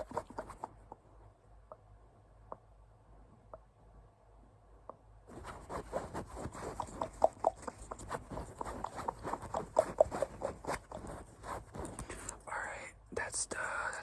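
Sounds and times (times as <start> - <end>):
scratching on a toy: 0.0 - 1.0, 5.3 - 12.5.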